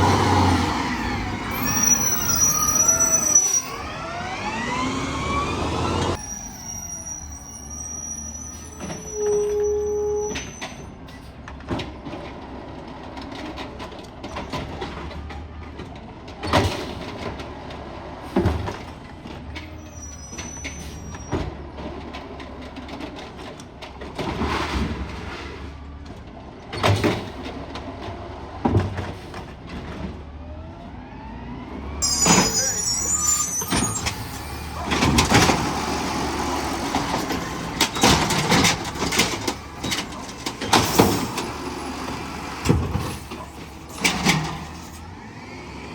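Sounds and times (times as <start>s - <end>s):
garbage truck engine running: 0.0s - 9.1s, 32.0s - 45.9s.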